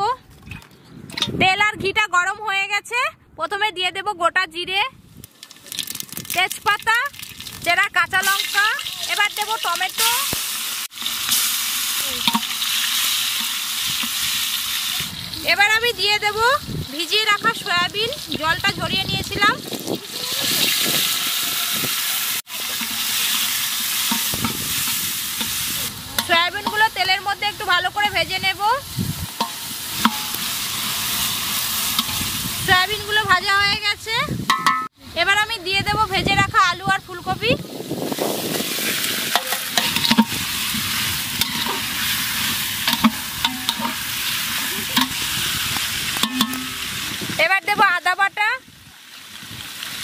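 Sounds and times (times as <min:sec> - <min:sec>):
food sizzling in hot oil: 0:05.2 - 0:34.6, 0:36.3 - 0:50.0
metal spatula clanking on pot: 0:12.2 - 0:12.6, 0:22.7 - 0:23.3, 0:24.0 - 0:25.6, 0:26.2 - 0:27.0, 0:29.4 - 0:30.5, 0:31.9 - 0:32.3, 0:39.3 - 0:40.5, 0:41.3 - 0:42.0, 0:42.8 - 0:45.3, 0:46.2 - 0:47.0.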